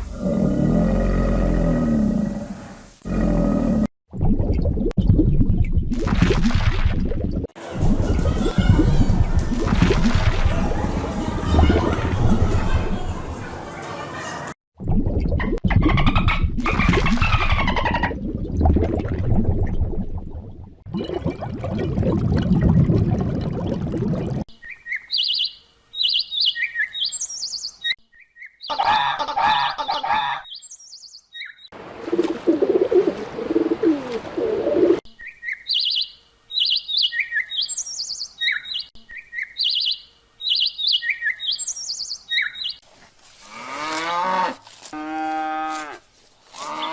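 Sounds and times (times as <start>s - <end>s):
songbird chirping: 24.5s - 32.5s, 35.1s - 42.8s
other animal sounds: 28.7s - 30.5s, 43.6s - 46.9s
cow mooing: 43.5s - 46.0s.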